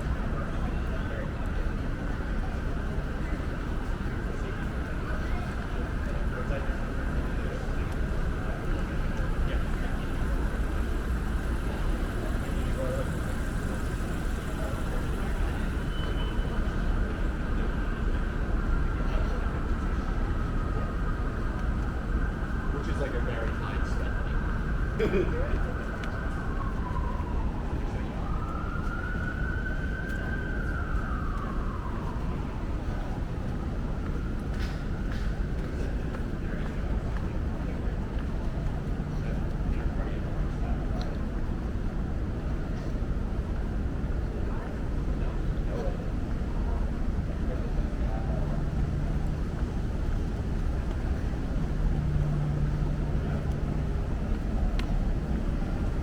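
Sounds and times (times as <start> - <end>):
street traffic rumble: 0.0 - 56.0
emergency siren wailing: 12.2 - 40.3.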